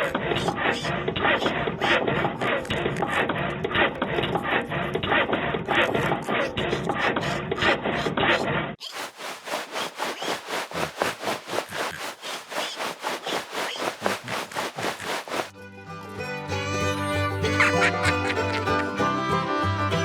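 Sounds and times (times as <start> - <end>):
hand tool rasping strokes: 8.8 - 15.5.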